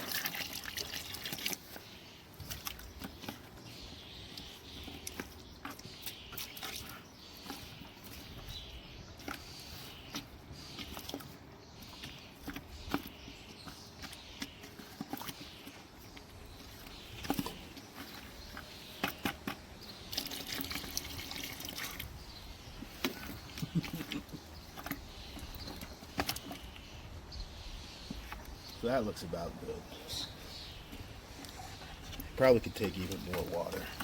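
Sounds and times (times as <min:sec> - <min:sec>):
water pouring into bucket: 0:00.0 - 0:01.8, 0:20.0 - 0:22.2.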